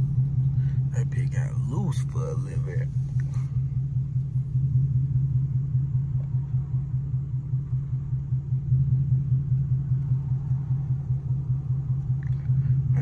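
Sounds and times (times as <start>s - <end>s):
car engine droning: 0.0s - 13.0s.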